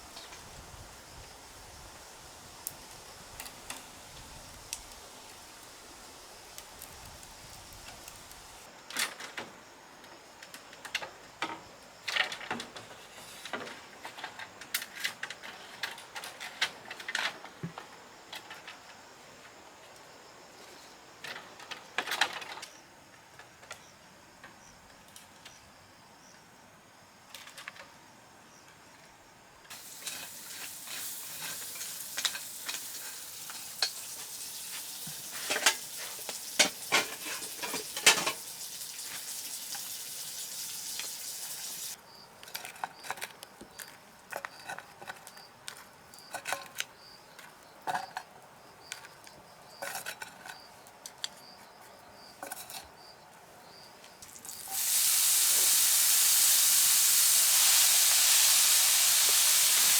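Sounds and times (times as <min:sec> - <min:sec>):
food sizzling in a pan: 0:00.0 - 0:08.7, 0:29.7 - 0:42.0, 0:54.2 - 0:59.9.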